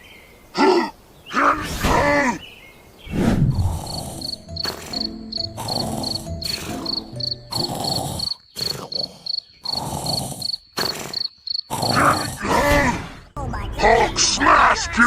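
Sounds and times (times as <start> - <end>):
high thin insect chirp: 4.0 - 11.7.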